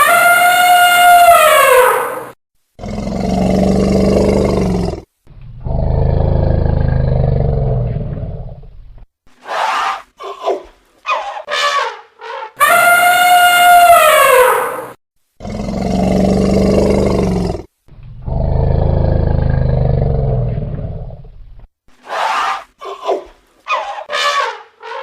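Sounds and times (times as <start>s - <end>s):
elephant trumpeting: 0.0s - 2.3s, 11.1s - 15.0s, 23.7s - 25.0s
elephant low calls: 11.1s - 14.9s.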